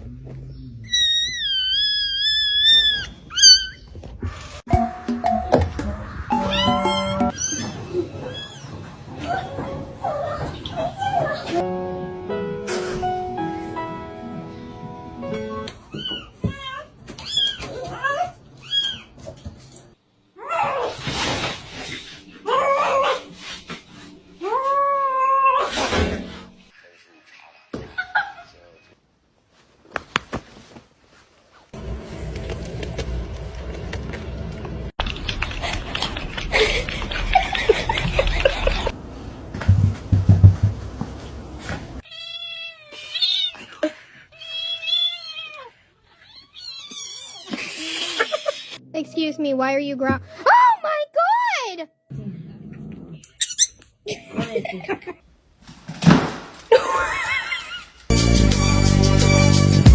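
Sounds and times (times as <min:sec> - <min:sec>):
rustling noise: 0:29.4 - 0:42.0
low thumps: 0:39.5 - 0:41.6.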